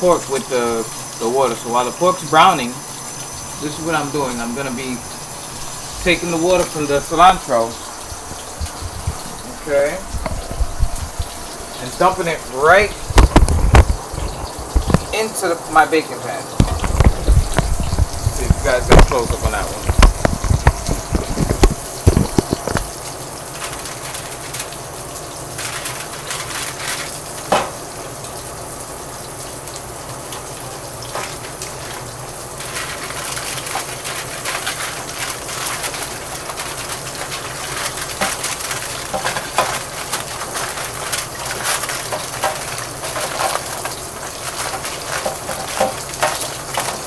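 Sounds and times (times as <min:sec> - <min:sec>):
meat sizzling in a pan: 0:00.0 - 0:15.4, 0:16.3 - 0:47.0.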